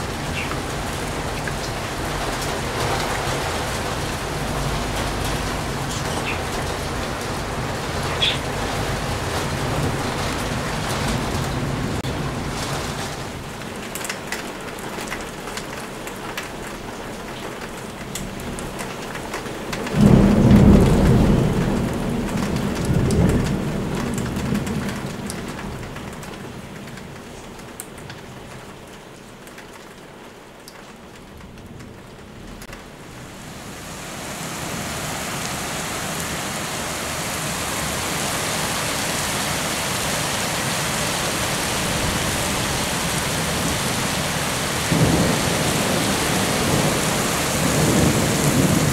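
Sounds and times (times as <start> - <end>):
thunder clap and rumble: 0.0 - 14.8, 17.7 - 28.6, 41.3 - 48.9
rain falling: 0.0 - 48.9.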